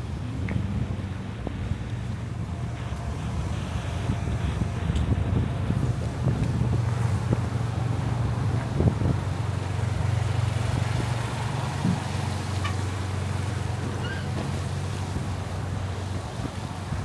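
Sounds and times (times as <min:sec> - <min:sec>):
vehicle engine droning: 0:00.0 - 0:17.0
wind buffeting microphone: 0:00.0 - 0:17.0.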